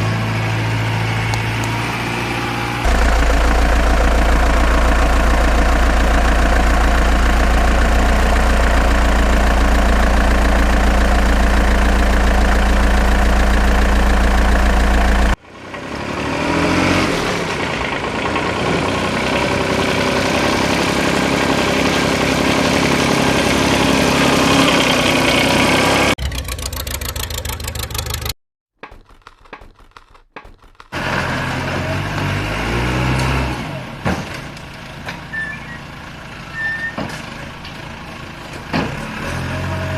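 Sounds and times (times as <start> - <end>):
engine revving: 0.0 - 28.4, 30.5 - 34.1, 38.9 - 39.9
heavy vehicle engine idling: 2.5 - 15.4.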